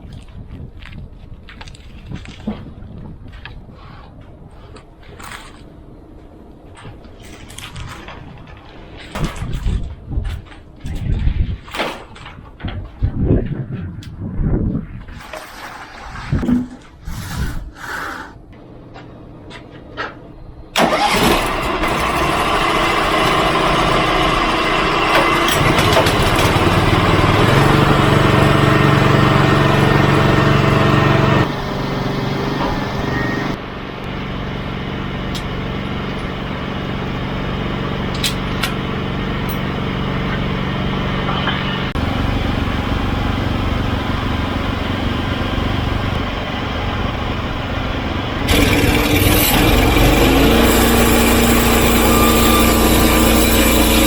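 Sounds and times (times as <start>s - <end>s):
sawmill gasoline engine sawing: 20.8s - 54.0s.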